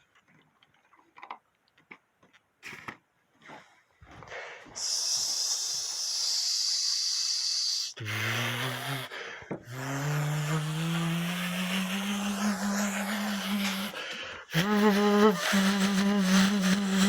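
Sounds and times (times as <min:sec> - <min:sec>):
steady hiss: 0:04.8 - 0:08.0
low hum rising in pitch: 0:09.8 - 0:14.0.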